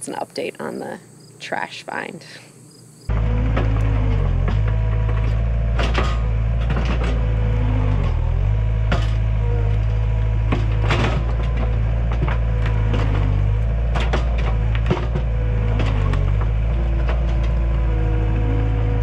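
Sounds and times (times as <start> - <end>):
diesel engine under load: 3.1 - 19.0
wood cracking and splintering: 3.5 - 18.2.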